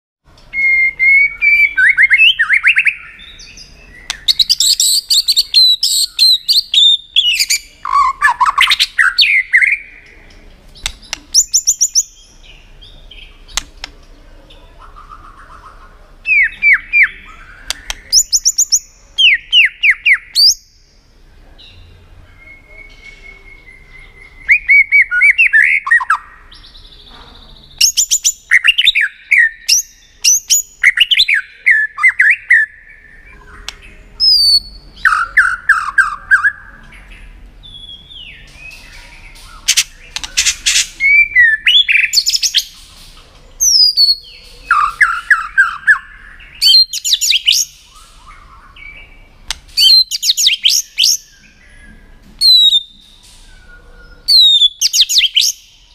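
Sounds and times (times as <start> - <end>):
bird singing whistled notes: 0.4 - 10.1, 10.8 - 13.6, 14.9 - 21.0, 21.6 - 42.8, 43.6 - 55.9
sharp clicks: 4.1 - 4.4, 10.0 - 11.6, 13.5 - 14.2, 17.7 - 18.8, 38.5 - 41.0, 49.4 - 49.8.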